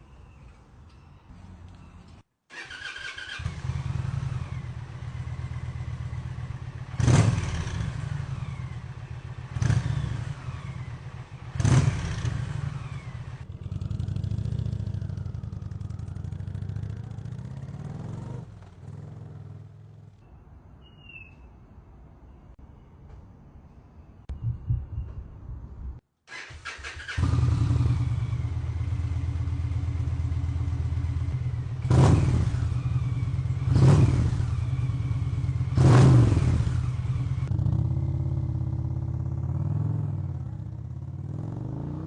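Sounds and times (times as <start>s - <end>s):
motorcycle engine revving and idling: 2.6s - 20.2s, 26.6s - 42.0s.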